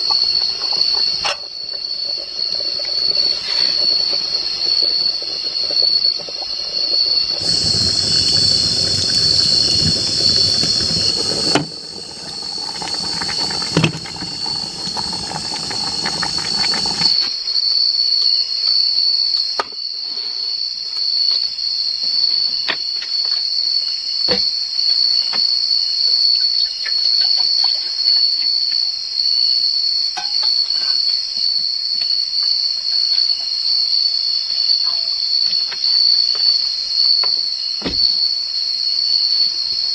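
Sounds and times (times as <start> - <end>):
insects droning: 0.0 - 39.9
heavy rain hissing: 7.0 - 17.2.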